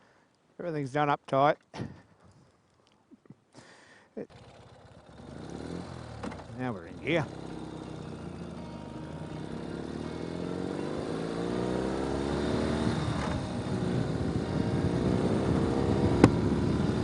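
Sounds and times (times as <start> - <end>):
motorcycle engine revving: 4.3 - 17.0
sharp knock: 16.1 - 16.4.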